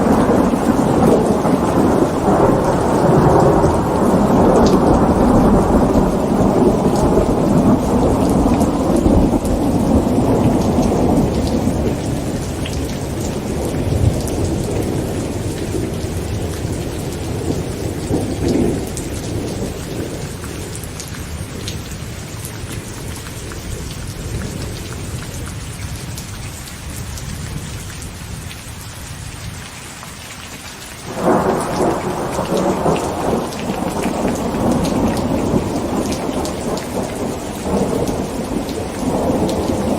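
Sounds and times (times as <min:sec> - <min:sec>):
loud thunderclap: 0:00.0 - 0:21.0, 0:31.1 - 0:39.9
thunder rumbling: 0:00.0 - 0:26.2, 0:31.0 - 0:39.9
heavy rain on a tent: 0:00.0 - 0:39.9.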